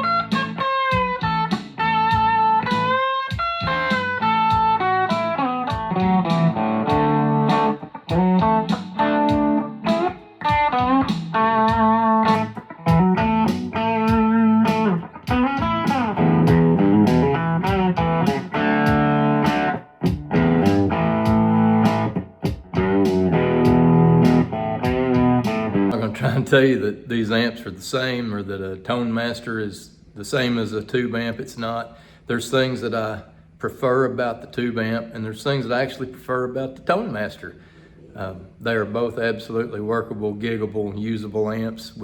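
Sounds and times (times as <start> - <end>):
bluesy electric guitar: 0.0 - 26.7.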